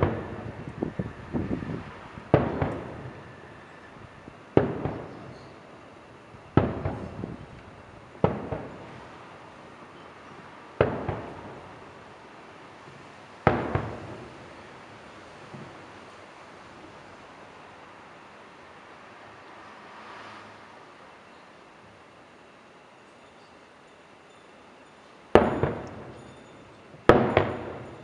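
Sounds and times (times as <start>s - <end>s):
firework shells bursting: 2.3s - 3.8s, 4.6s - 5.6s, 6.5s - 9.0s, 25.4s - 28.0s.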